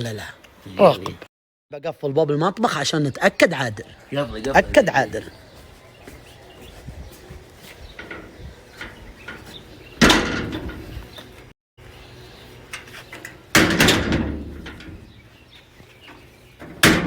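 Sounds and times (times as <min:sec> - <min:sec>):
door slamming with a bang: 0:10.0 - 0:11.0, 0:13.5 - 0:15.2, 0:16.6 - 0:17.0.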